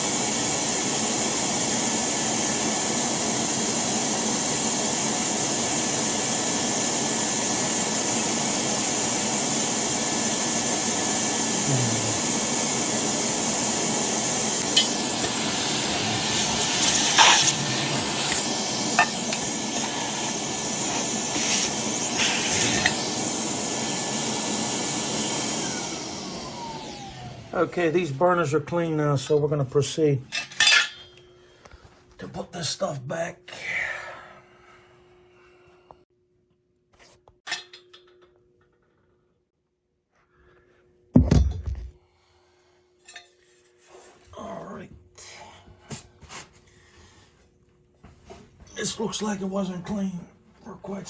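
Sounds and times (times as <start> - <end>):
shop vacuum running: 0.0 - 29.4.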